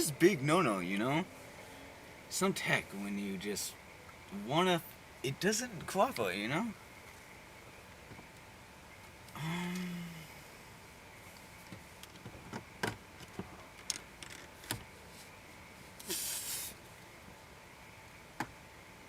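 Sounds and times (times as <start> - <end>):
short scraping rustle: 16.0 - 16.8.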